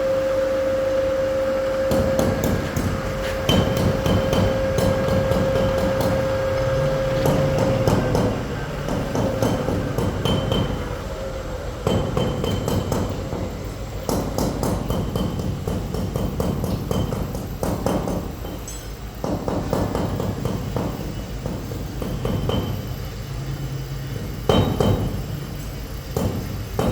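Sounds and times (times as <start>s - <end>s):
milling machine motor tone: 0.0s - 9.1s.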